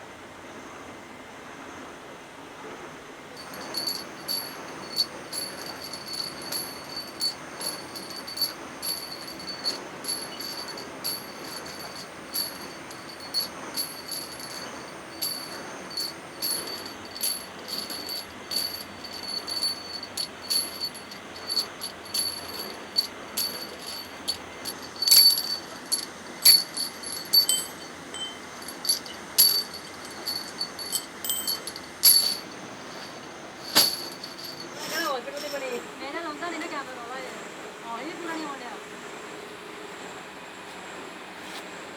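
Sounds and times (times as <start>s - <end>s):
steel parts clinking: 3.4s - 35.7s.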